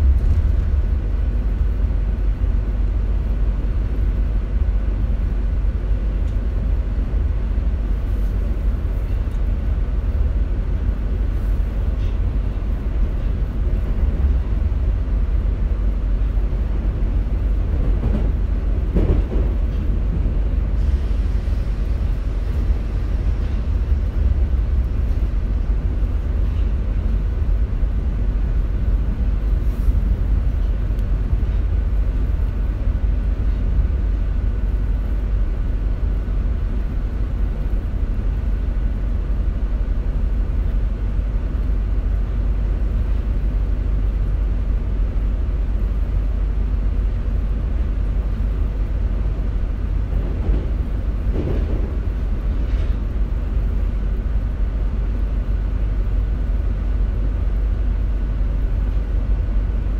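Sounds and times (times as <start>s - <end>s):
faint steady whine: 0.0s - 17.7s
commuter train rumble: 0.0s - 59.9s.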